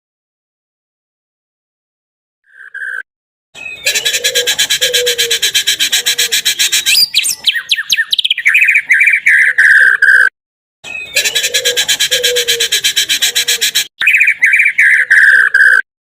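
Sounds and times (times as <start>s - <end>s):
bird whistled notes sliding downward: 3.6s - 10.3s.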